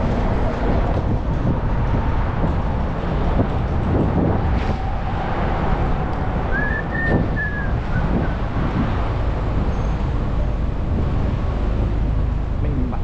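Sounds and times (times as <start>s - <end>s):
road noise: 0.0s - 13.0s
wind rumbling on microphone: 0.0s - 13.0s
high whistling tone: 6.5s - 8.4s.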